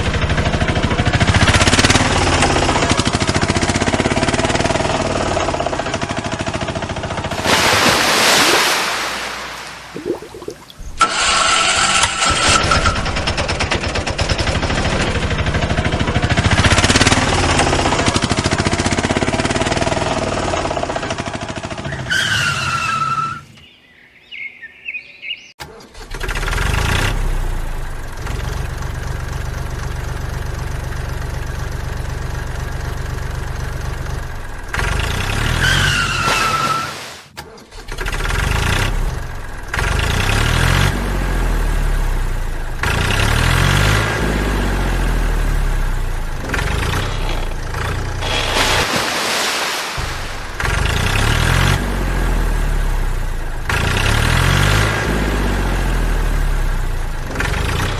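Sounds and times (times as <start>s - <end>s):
vehicle engine starting and running: 0.0s - 7.8s, 10.7s - 23.3s, 25.6s - 36.1s, 37.4s - 49.1s, 49.8s - 57.9s
short falling squeal: 35.6s - 37.0s.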